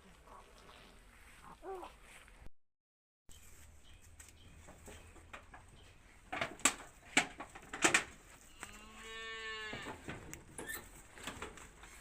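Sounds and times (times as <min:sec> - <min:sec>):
cow mooing: 0:08.6 - 0:10.0.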